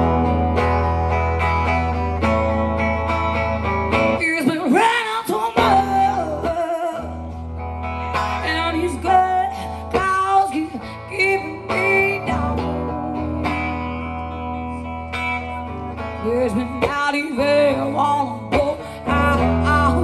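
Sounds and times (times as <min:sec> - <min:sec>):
acoustic guitar playing: 0:00.0 - 0:20.0
woman singing: 0:04.1 - 0:14.4, 0:15.2 - 0:20.0.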